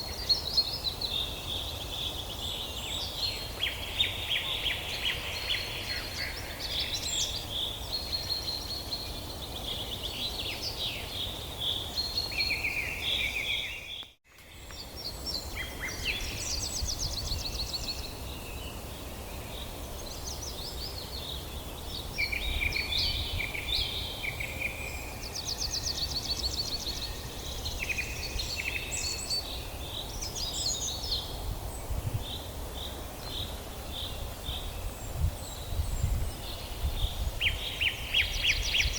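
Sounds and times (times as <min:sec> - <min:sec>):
songbirds singing and calling: 0:00.0 - 0:38.9.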